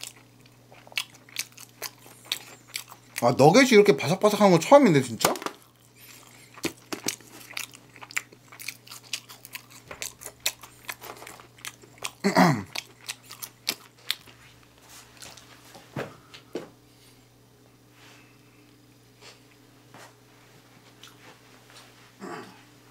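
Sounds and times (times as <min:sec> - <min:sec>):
crunchy chewing: 0:00.0 - 0:03.4, 0:05.5 - 0:15.6, 0:21.0 - 0:21.2.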